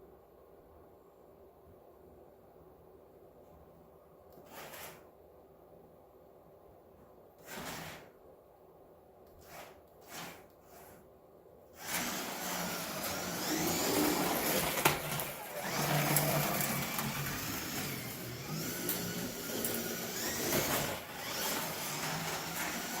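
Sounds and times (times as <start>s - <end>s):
slot car motor whining: 11.8s - 23.0s.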